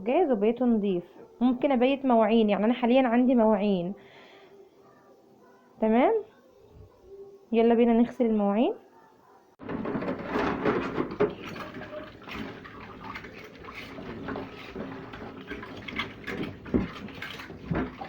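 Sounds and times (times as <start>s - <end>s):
dishes and utensils clinking: 9.6s - 18.0s
tap water running: 9.6s - 18.0s.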